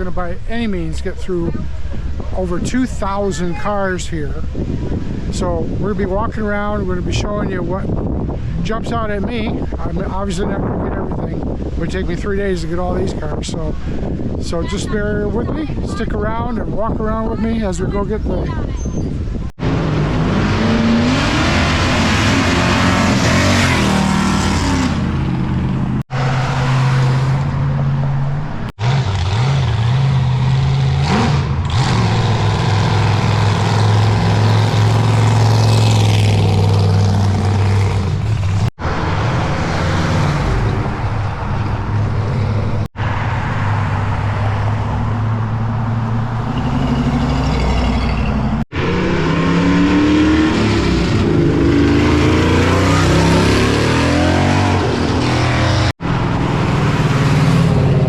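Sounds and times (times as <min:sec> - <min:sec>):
car engines revving: 0:19.2 - 0:58.0.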